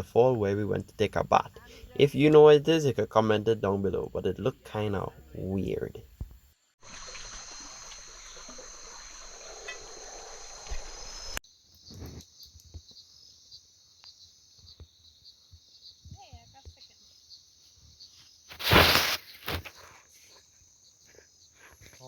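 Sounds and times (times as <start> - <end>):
insects trilling: 6.8 - 22.0
broad hiss: 18.5 - 19.6.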